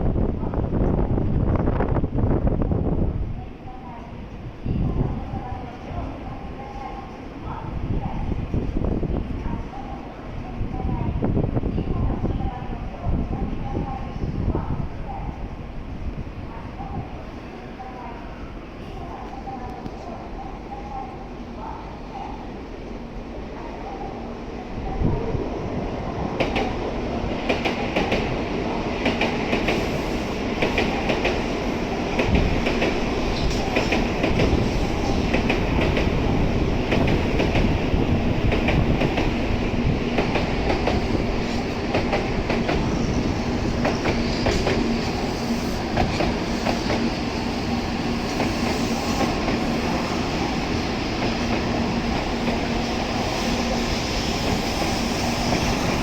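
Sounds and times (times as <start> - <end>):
train wheels clacking over rail joints: 29.0 - 31.6, 40.0 - 43.0.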